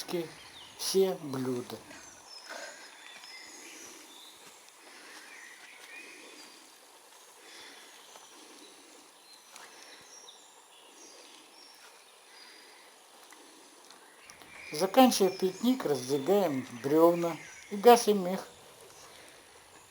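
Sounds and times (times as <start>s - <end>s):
birds chirping: 0.0s - 19.9s
faint clicks: 9.5s - 10.0s, 13.2s - 14.6s.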